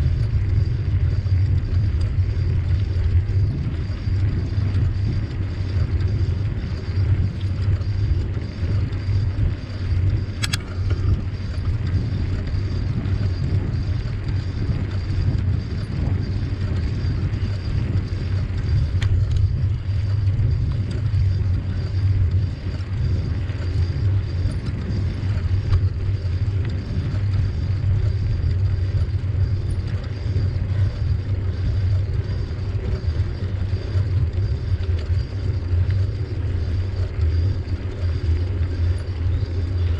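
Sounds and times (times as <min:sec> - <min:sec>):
bicycle tyres rolling on trail: 0:00.0 - 0:39.9
wind buffeting microphone: 0:00.0 - 0:39.9
sharp click: 0:10.4 - 0:11.0.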